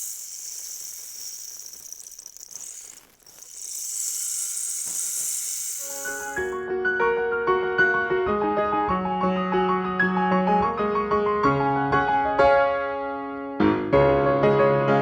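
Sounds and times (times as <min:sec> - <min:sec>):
rain stick seeds trickling: 0:00.0 - 0:06.6.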